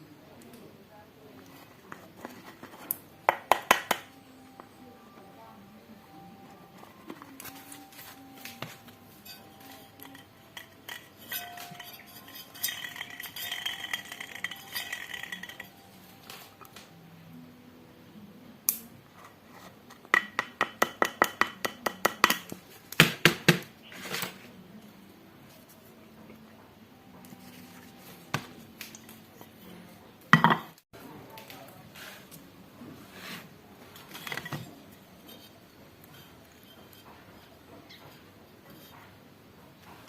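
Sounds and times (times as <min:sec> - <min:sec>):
metal tools clinking and scraping: 0:06.8 - 0:16.7, 0:33.3 - 0:39.0
ringing metallic note: 0:07.5 - 0:16.0.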